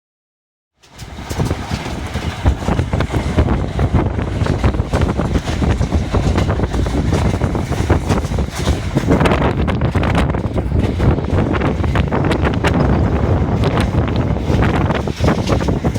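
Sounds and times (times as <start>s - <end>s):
train rumbling on rails: 0.8s - 15.9s.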